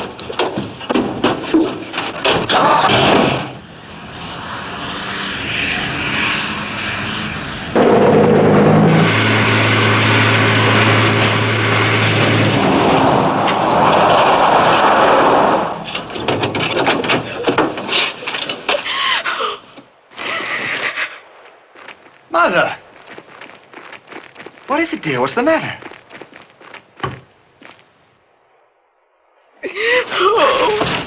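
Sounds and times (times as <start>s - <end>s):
vehicle engine hum: 0.0s - 24.6s
road noise: 0.0s - 31.0s.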